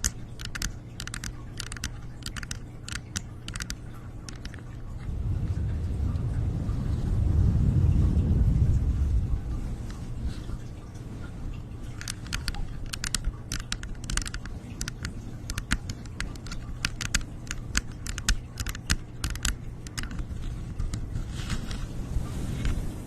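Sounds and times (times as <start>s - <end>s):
light clicking taps: 0.0s - 5.1s, 11.9s - 21.1s
steady low hum: 0.0s - 23.0s.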